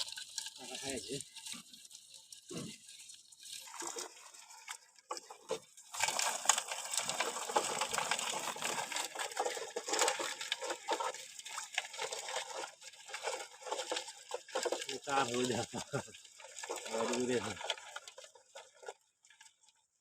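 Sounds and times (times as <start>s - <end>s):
water splashing: 0.0s - 19.8s
rustling and crackling of netting: 5.2s - 19.6s.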